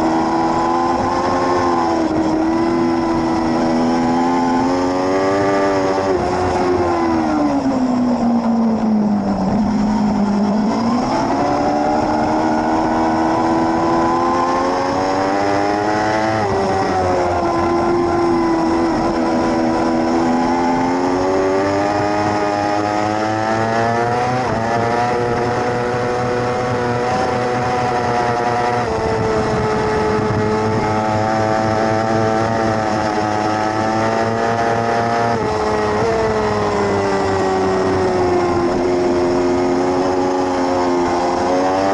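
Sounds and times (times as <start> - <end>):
motorcycle engine at high revs: 0.0 - 41.9.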